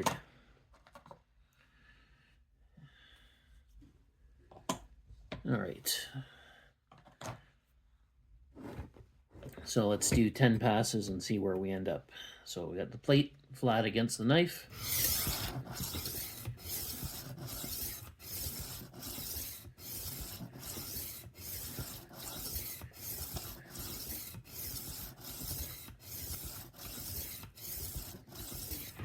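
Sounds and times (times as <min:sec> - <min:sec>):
knife sharpener grinding steel: 0:14.7 - 0:29.0.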